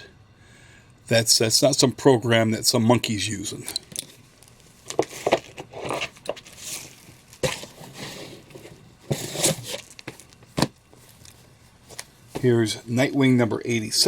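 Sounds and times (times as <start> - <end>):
comic books rustling: 4.5 - 12.8.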